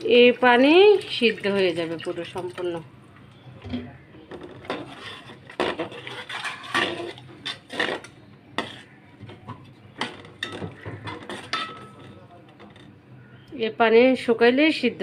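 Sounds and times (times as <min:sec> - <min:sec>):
spatula scraping a cooking pot: 0:04.4 - 0:12.9.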